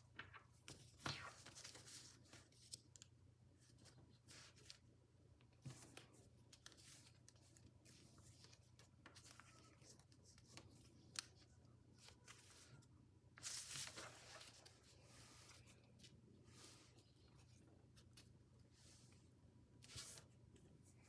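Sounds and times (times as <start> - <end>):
paper rustling and crinkling: 0.1 - 3.1, 5.6 - 18.3.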